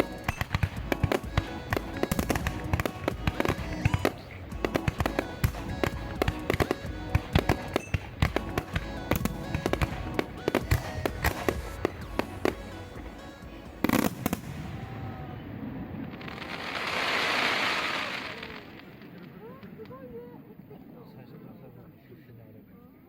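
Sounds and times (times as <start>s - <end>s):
background music: 0.0s - 15.9s
fireworks bangs and crackles: 0.0s - 20.2s.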